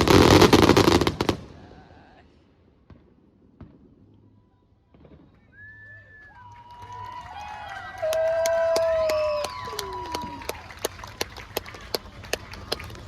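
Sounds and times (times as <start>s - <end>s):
fireworks crackling: 0.0s - 5.6s.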